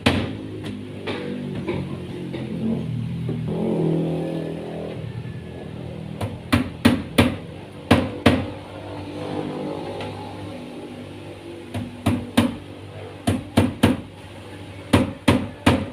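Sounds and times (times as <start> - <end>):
hammer striking wood: 0.0 - 1.9, 6.2 - 8.5, 11.7 - 12.6, 13.2 - 14.0, 14.9 - 15.9.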